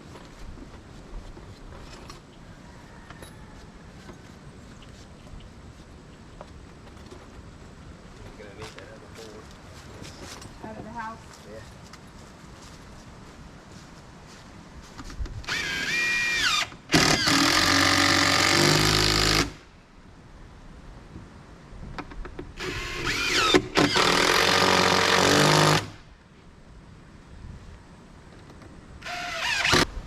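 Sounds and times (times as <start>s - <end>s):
power drill driving screws: 15.4s - 19.6s, 22.6s - 26.0s, 29.0s - 29.9s.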